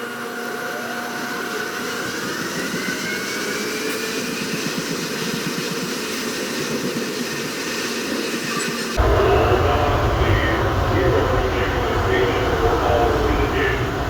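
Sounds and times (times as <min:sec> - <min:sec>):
train running noise: 0:00.0 - 0:14.0
electric whine: 0:08.4 - 0:14.0.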